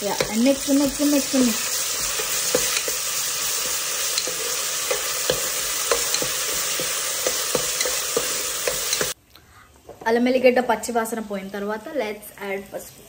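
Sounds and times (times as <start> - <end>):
food sizzling in hot oil: 0.0 - 9.2
metal spoon scraping pan: 1.7 - 9.2.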